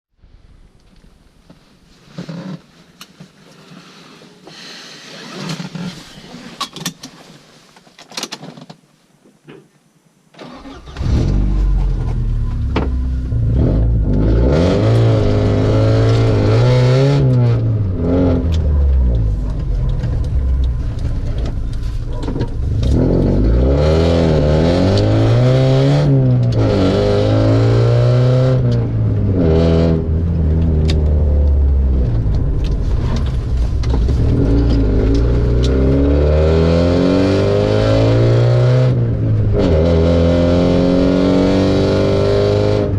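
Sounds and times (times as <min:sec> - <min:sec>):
loud exhaust revving: 0:13.2 - 0:19.7, 0:22.7 - 0:32.3, 0:34.1 - 0:42.9.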